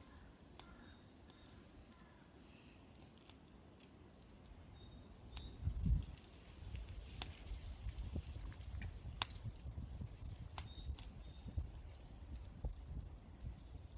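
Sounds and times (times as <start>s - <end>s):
small birds chirping: 0.0s - 3.2s, 4.2s - 6.2s, 10.2s - 12.3s.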